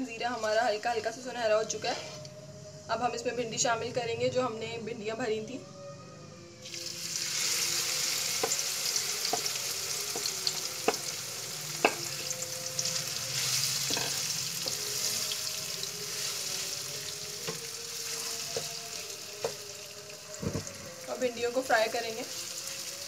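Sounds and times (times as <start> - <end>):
vegetables sizzling in hot oil: 6.6 - 23.0.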